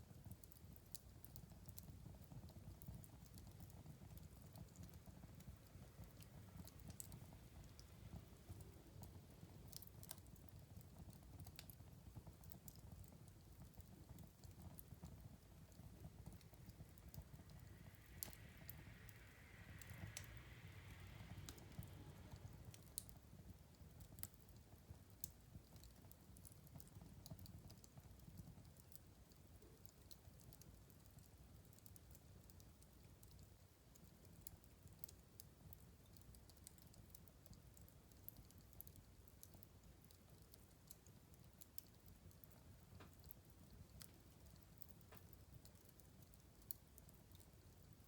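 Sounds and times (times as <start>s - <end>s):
soft hiss: 0.0s - 48.0s
wood fire crackling: 0.0s - 48.0s
low steady rumble: 14.3s - 23.8s.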